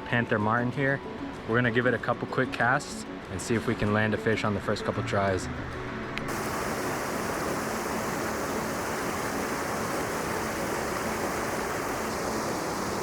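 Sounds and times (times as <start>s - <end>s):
river rushing: 6.3s - 13.0s.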